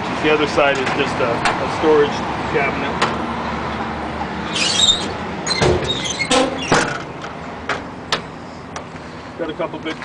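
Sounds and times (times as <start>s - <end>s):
metal door scraping squeak: 4.4s - 7.1s.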